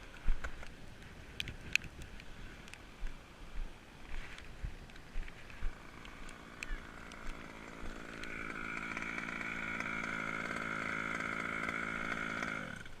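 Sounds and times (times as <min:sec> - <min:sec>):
two-stroke engine buzzing: 0:04.4 - 0:13.0.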